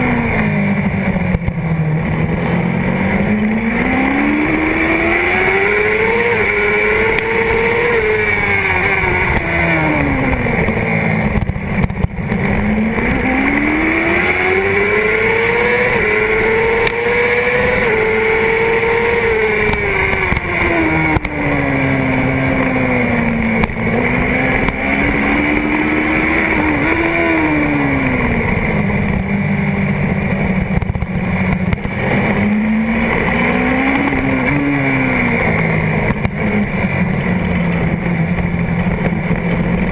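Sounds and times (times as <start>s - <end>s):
sport bike engine revving: 0.0s - 39.9s.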